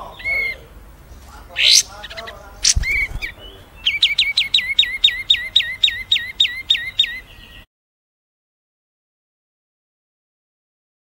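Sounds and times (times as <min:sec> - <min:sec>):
bird chirps: 0:00.0 - 0:07.7
bird whistling sharp notes: 0:02.6 - 0:07.2.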